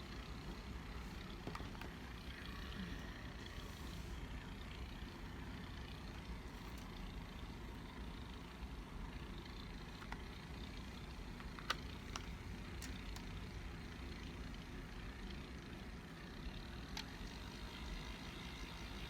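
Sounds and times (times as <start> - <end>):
small electric motor running: 0.0 - 19.0.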